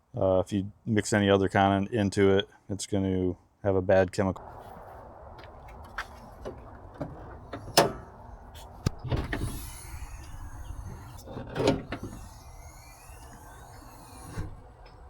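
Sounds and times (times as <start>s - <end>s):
tools knocking and clunking: 5.4s - 9.8s, 10.9s - 12.2s.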